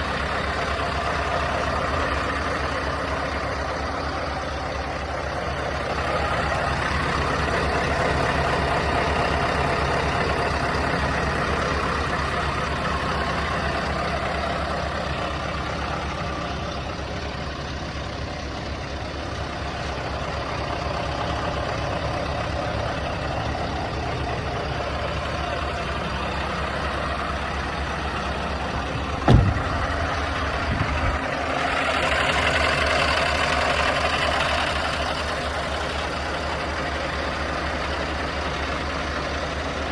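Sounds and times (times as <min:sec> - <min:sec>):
diesel engine droning: 0:00.0 - 0:39.9
sharp knock: 0:29.2 - 0:30.1.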